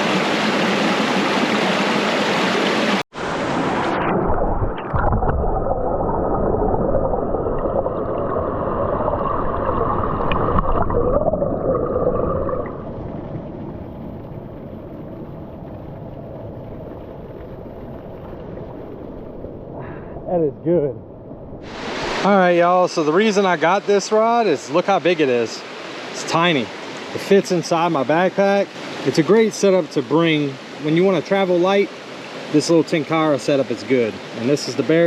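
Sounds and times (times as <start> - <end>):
rushing stream water: 0.0 - 20.8, 21.6 - 35.0.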